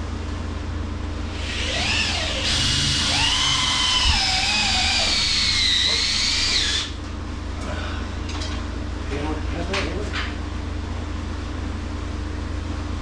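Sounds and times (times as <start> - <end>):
power drill motor whining: 1.4 - 7.0.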